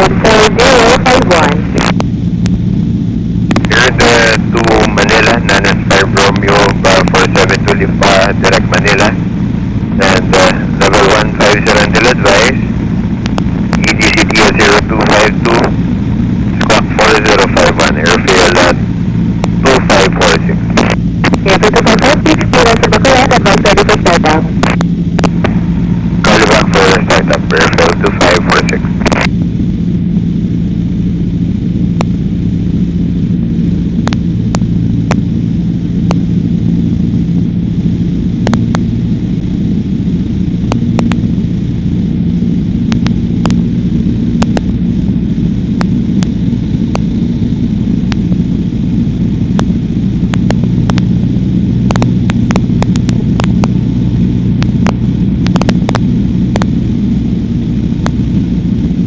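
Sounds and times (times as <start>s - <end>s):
airplane engine droning: 0.0s - 59.0s
sharp clicks: 3.4s - 3.8s, 24.6s - 25.6s, 34.0s - 35.2s, 40.6s - 41.3s, 44.4s - 44.7s, 51.8s - 53.8s, 54.6s - 56.7s.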